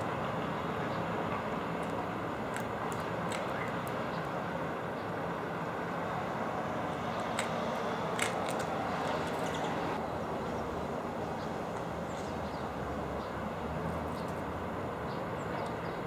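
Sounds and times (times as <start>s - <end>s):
distant city traffic hum: 0.0s - 16.0s
sharp ticks: 7.2s - 8.8s.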